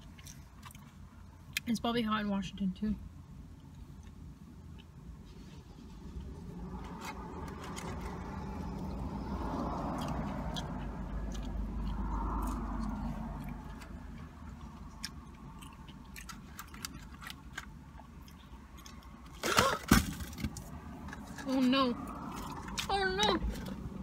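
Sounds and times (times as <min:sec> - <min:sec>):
person chewing crunchy food: 0:00.0 - 0:01.6, 0:06.7 - 0:19.5.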